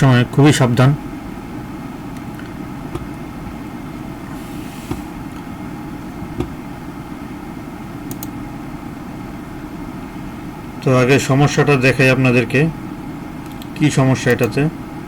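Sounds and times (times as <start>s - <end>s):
low background hum: 0.0s - 15.0s
faint small clicks: 8.1s - 8.3s, 13.4s - 13.7s.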